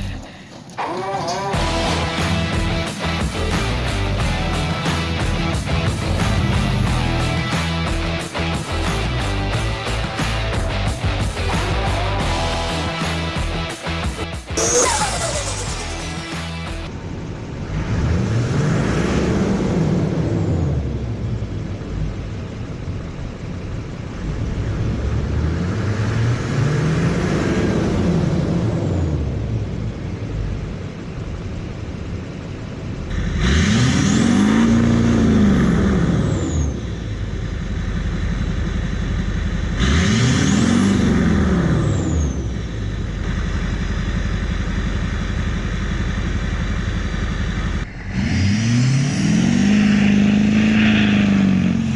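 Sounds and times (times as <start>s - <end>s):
diesel engine revving: 0.0s - 51.9s.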